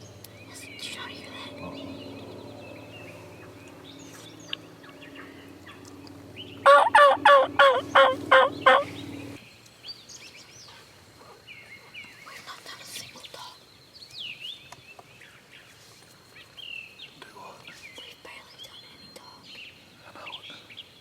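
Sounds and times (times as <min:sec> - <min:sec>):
steady low hum: 0:00.0 - 0:09.4
wild turkey calling: 0:00.5 - 0:09.4.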